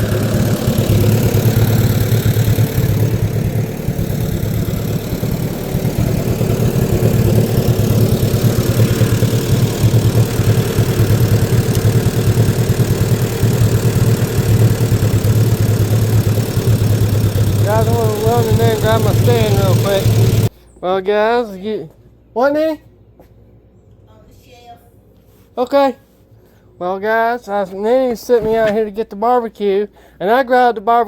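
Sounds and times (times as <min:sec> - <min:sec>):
lawn mower engine running: 0:00.0 - 0:20.5.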